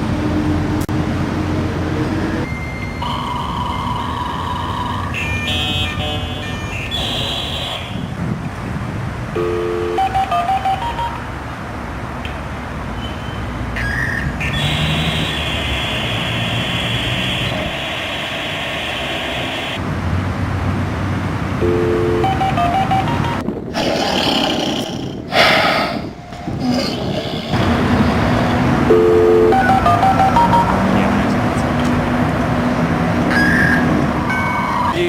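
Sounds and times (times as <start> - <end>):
steady high tone: 2.3 - 8.1, 21.6 - 23.4, 25.4 - 31.4, 33.3 - 35.0
dense layered electronic din: 14.8 - 19.8
stepped electronic beeps: 33.3 - 35.0.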